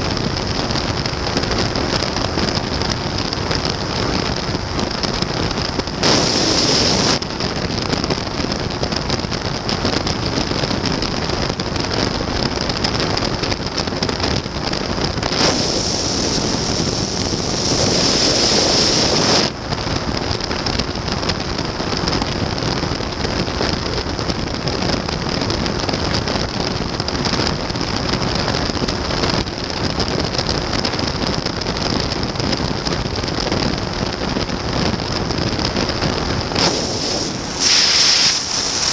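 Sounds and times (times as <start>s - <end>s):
wind rush on microphone: 0.0s - 38.9s
aircraft engine drone: 15.4s - 18.8s.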